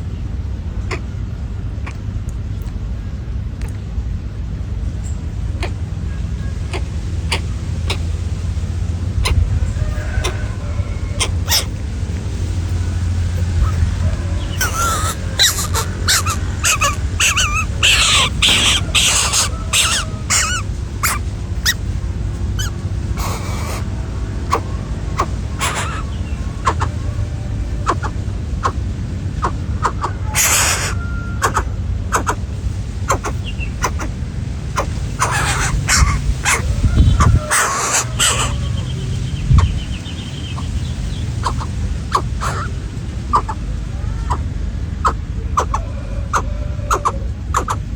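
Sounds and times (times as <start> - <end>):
steady low hum: 0.0 - 47.9
harsh squawks: 0.9 - 1.1, 6.5 - 21.9, 22.6 - 39.8, 40.4 - 47.9
wavering animal calls: 6.5 - 47.9
fowl clucking: 6.7 - 8.1, 9.2 - 11.8, 12.8 - 21.8, 24.5 - 27.2, 27.8 - 28.8, 29.4 - 32.4, 33.1 - 34.1, 34.7 - 38.8, 41.4 - 47.9.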